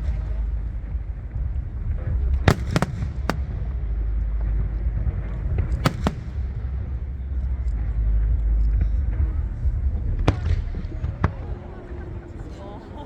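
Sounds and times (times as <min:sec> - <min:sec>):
fireworks bangs: 0:02.0 - 0:03.9, 0:05.0 - 0:07.2.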